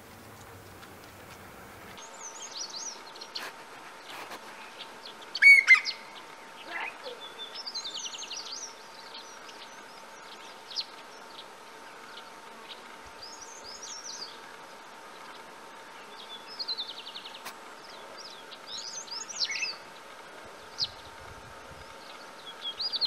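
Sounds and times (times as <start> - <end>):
birds chirping: 0.0 - 21.2
bird twittering: 5.3 - 7.7.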